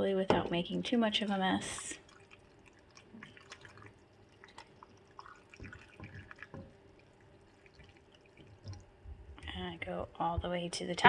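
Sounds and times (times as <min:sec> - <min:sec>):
brine trickling into jar: 0:01.2 - 0:09.4.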